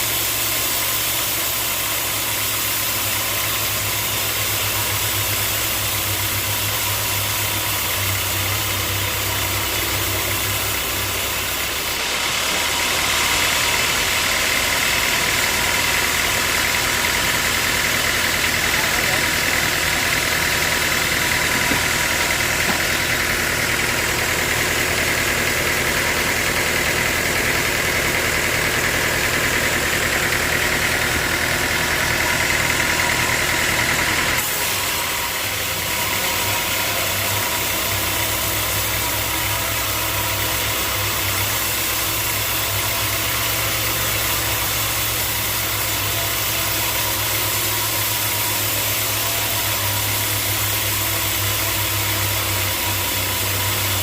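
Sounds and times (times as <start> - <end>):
high mechanical whine: 0.0 - 54.0
sawmill machinery running: 0.0 - 54.0
low machinery hum: 15.9 - 42.0.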